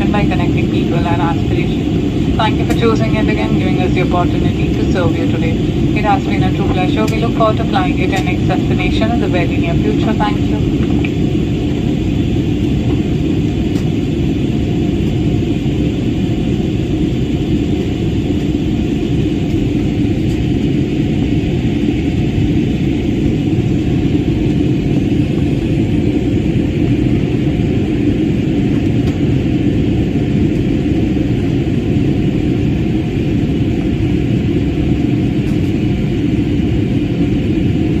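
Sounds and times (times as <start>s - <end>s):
airliner cabin engine rumble: 0.0s - 38.0s.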